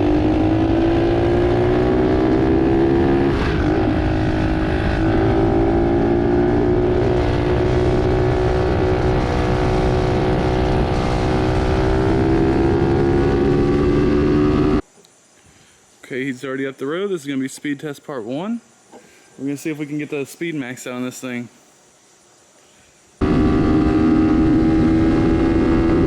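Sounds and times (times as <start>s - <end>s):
pit bike engine revving high: 0.0s - 14.8s, 23.2s - 26.0s.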